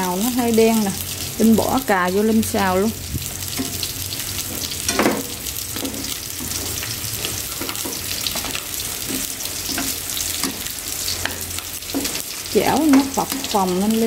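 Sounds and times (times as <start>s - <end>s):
meat and vegetables sizzling in pan: 0.0s - 14.0s
chopsticks clicking on pan: 7.6s - 13.6s.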